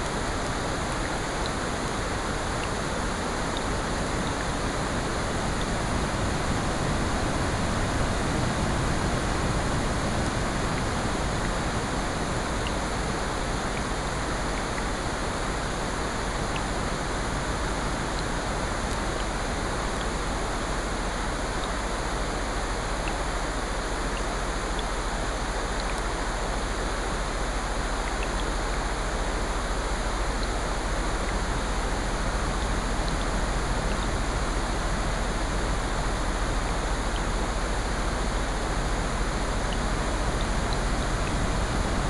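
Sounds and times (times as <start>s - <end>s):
rain falling: 0.0s - 42.0s
faint ticks: 25.6s - 26.2s, 28.0s - 28.8s.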